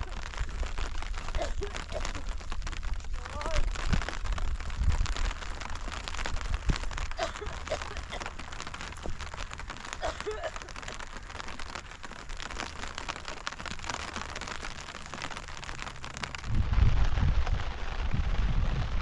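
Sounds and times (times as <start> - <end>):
low steady rumble: 0.0 - 19.0
rain falling and pattering: 0.0 - 19.0.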